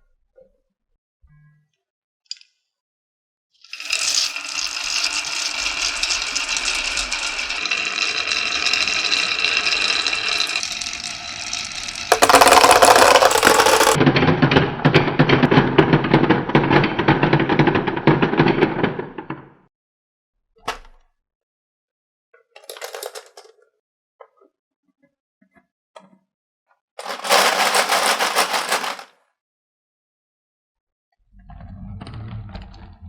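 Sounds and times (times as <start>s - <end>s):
marbles rattling down a track: 3.7s - 14.0s, 27.0s - 29.1s.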